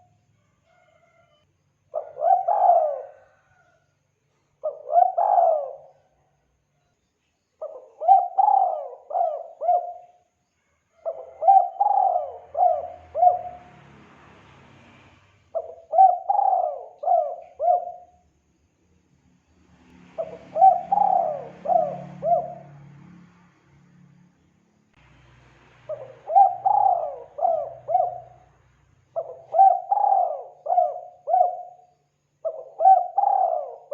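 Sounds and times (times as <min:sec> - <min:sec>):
dove cooing: 0:02.0 - 0:03.7, 0:04.6 - 0:06.0, 0:07.6 - 0:10.2, 0:11.0 - 0:13.8, 0:15.5 - 0:18.2, 0:20.2 - 0:22.9, 0:25.9 - 0:28.6, 0:29.2 - 0:33.9.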